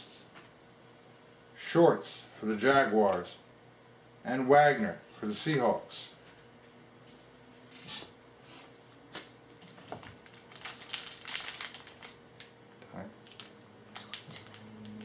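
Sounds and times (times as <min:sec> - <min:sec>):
wrapper crinkling: 0:09.7 - 0:12.5, 0:13.2 - 0:15.0.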